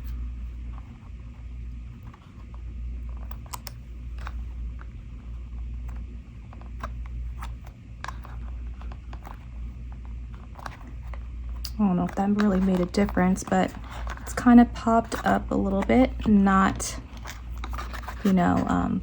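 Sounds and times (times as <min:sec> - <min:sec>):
steady low hum: 0:00.0 - 0:19.0
cardstock pieces clicking and tapping: 0:10.6 - 0:14.4.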